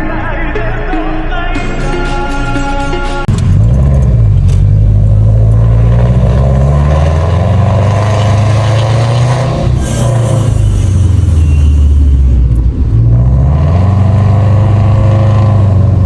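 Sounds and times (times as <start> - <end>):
music: 0.0 - 3.6
car engine exhaust rumble accelerating: 3.3 - 16.0.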